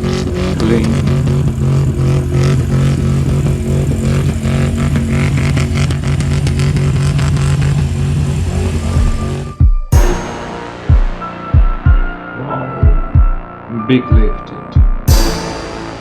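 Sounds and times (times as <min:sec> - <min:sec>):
truck engine revving: 0:00.0 - 0:09.6
loud exhaust: 0:00.0 - 0:10.9, 0:15.1 - 0:16.0.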